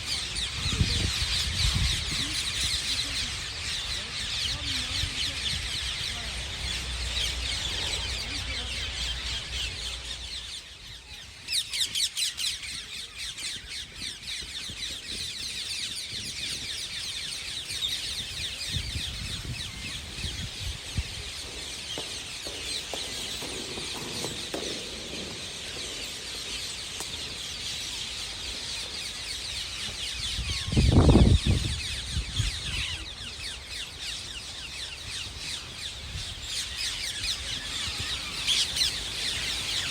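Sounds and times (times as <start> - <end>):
parakeets screeching: 36.3 - 39.9.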